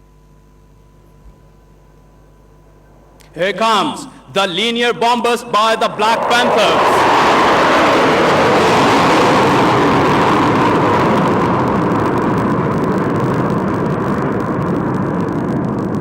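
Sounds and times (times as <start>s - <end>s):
jet fighters roaring overhead: 2.4s - 13.3s.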